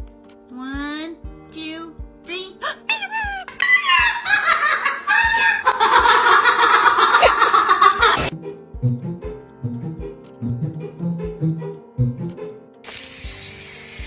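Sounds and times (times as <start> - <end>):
background music with steady beat: 0.0 - 14.0
cackling laughter-like voice: 3.3 - 8.3.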